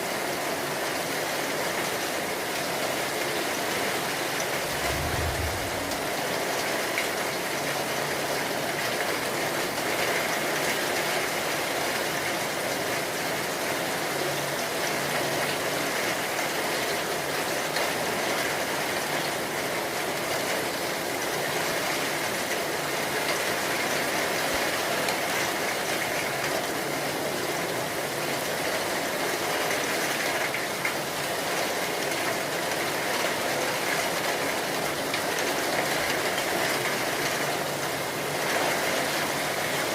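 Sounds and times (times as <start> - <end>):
heavy rain: 0.0 - 39.9
low thump: 4.7 - 6.2.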